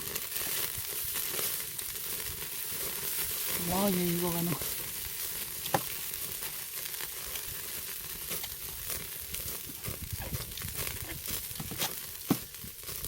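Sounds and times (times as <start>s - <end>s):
meat sizzling on a grill: 0.0s - 13.0s
fat spitting and crackling: 7.1s - 13.0s.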